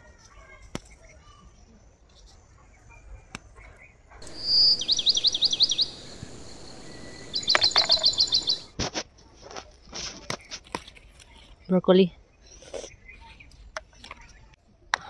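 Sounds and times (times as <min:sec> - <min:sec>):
songbird singing: 0:00.9 - 0:08.7, 0:11.4 - 0:14.6
handling clicks and rustles: 0:07.2 - 0:11.7.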